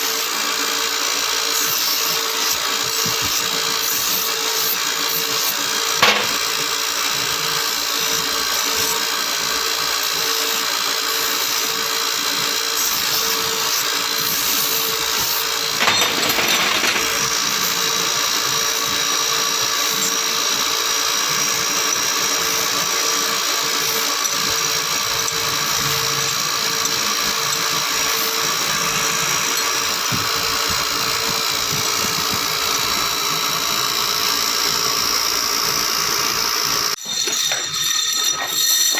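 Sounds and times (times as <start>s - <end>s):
grinding noise: 6.0s - 6.6s, 15.0s - 17.6s
sharp metal clank: 6.0s - 6.7s, 15.2s - 17.4s.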